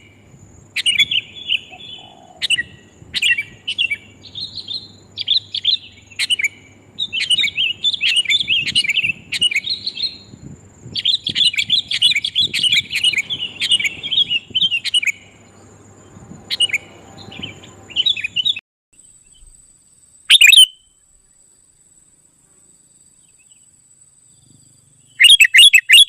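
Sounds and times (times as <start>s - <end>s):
birds chattering: 0.0s - 18.6s
thin high whine: 0.0s - 18.6s.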